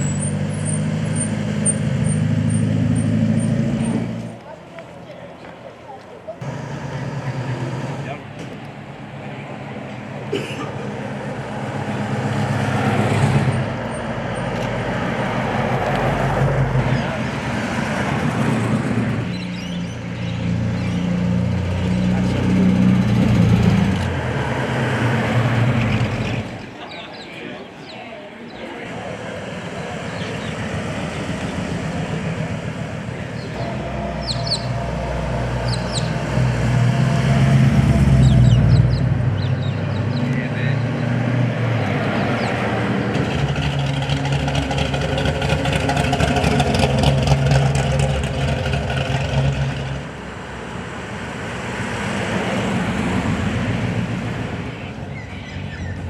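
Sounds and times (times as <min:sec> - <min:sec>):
birds chirping: 0:19.2 - 0:22.2, 0:25.8 - 0:32.1, 0:33.1 - 0:36.4, 0:38.2 - 0:41.2, 0:54.7 - 0:56.0
car engine running: 0:43.1 - 0:50.3.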